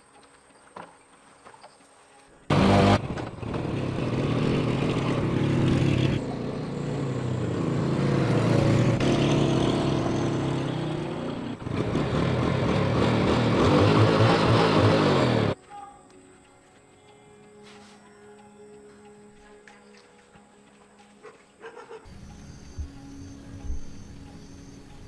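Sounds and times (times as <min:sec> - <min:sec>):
motorcycle engine revving: 0:02.5 - 0:15.6.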